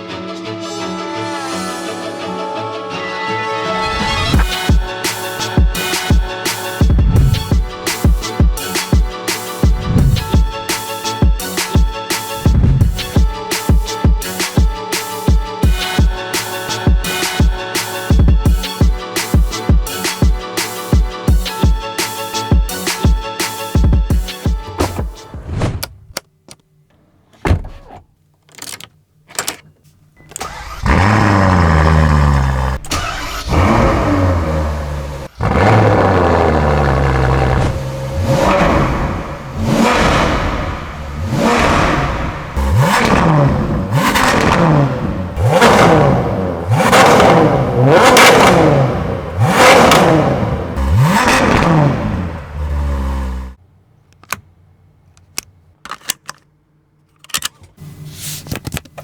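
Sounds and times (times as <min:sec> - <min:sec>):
car engine starting and revving: 0:03.9 - 0:13.2, 0:30.3 - 0:53.6
clicks: 0:54.1 - 0:54.5.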